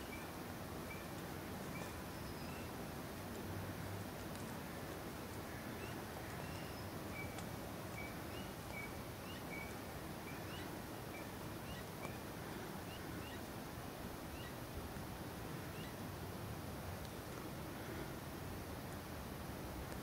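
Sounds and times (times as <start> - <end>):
small bird chirping: 0.0 - 2.8, 5.8 - 12.2, 12.8 - 13.5, 14.3 - 14.6, 15.7 - 16.0
steady hiss: 0.0 - 20.0.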